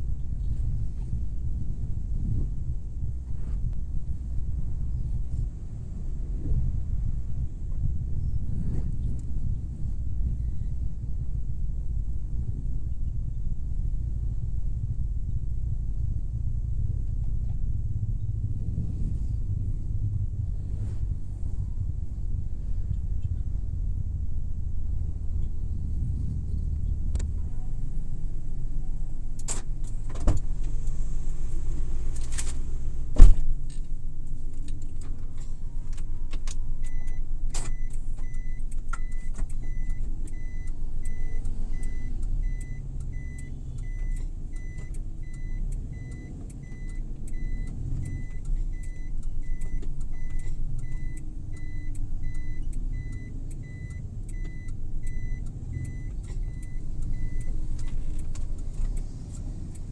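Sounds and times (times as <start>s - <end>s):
car engine and road rumble: 0.0s - 59.9s
turn signal ticking: 0.0s - 59.9s
sharp loud thump: 32.5s - 33.5s.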